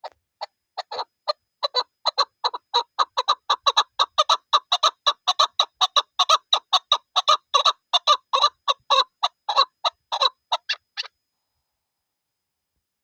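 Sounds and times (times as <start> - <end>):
partridge clucking calls: 0.8 - 11.1.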